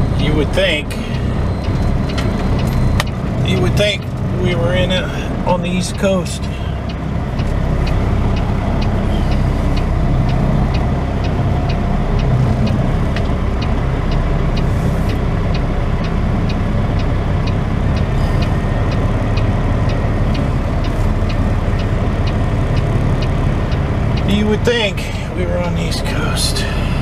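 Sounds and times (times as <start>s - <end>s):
regular ticking: 0.0s - 27.0s
truck diesel engine running: 0.0s - 27.0s.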